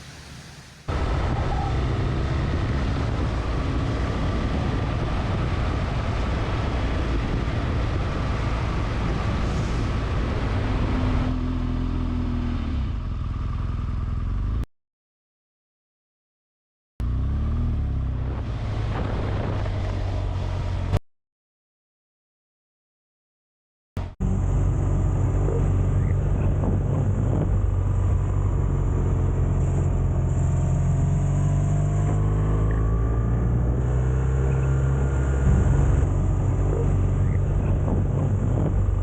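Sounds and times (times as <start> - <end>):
wind on microphone: 0.0 - 11.5, 18.2 - 21.0, 24.2 - 39.0
road noise: 0.0 - 14.6, 17.0 - 21.0, 24.0 - 39.0
motorcycle engine at speed: 0.9 - 14.6, 17.0 - 21.0, 24.0 - 39.0.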